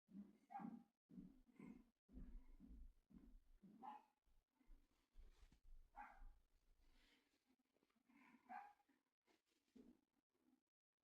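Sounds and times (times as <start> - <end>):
faint dog barking: 0.5 - 0.8, 3.8 - 4.1, 6.0 - 6.3, 8.4 - 8.9.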